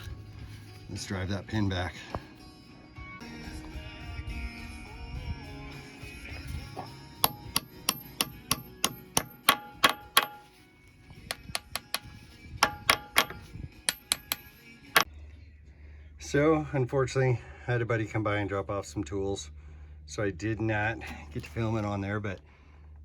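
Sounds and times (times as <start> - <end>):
hammer striking metal pin: 7.2 - 10.6, 11.3 - 15.1.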